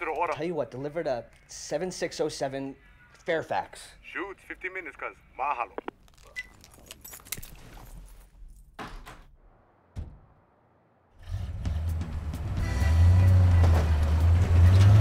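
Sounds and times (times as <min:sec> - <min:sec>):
thump: 0:09.9 - 0:10.4
car engine rumbling: 0:11.2 - 0:15.0.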